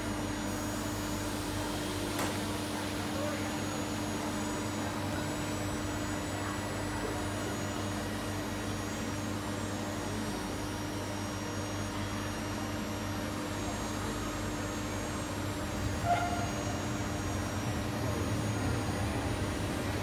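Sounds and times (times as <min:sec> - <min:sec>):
electric train humming: 0:13.8 - 0:20.0.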